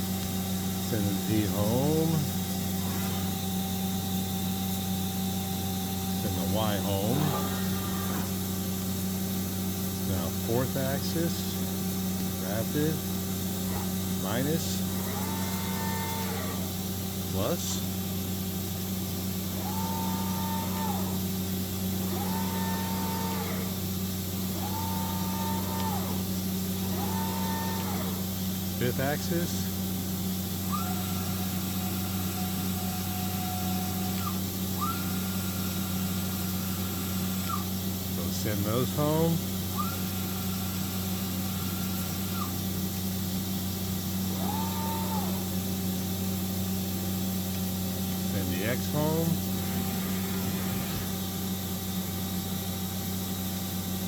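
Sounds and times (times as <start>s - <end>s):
servo motor whining: 0.0s - 47.3s, 48.0s - 52.4s
low machine hum: 0.0s - 54.0s.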